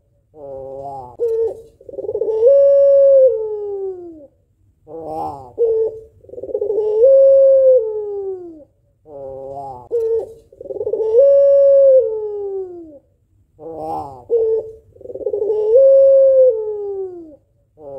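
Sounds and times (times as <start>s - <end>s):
dove cooing: 0.0s - 17.9s.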